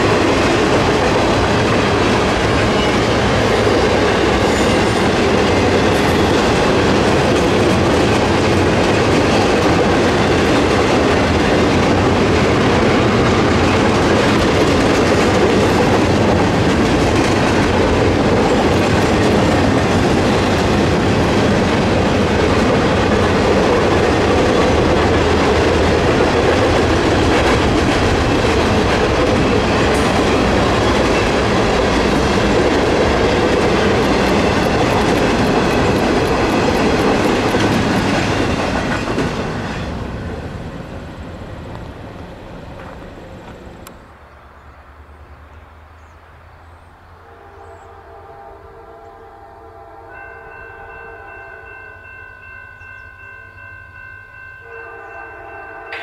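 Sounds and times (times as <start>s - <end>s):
freight train wheels rumbling: 0.0s - 44.3s.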